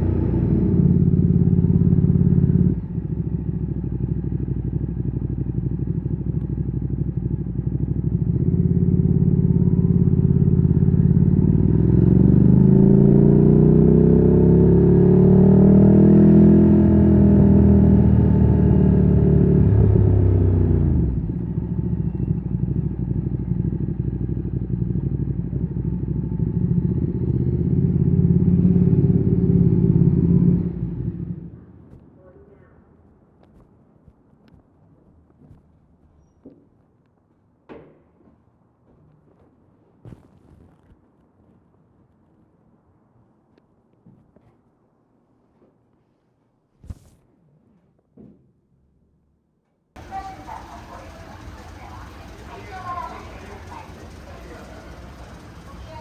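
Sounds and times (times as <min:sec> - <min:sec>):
motorcycle engine accelerating: 0:00.0 - 0:31.6, 0:50.0 - 0:56.0.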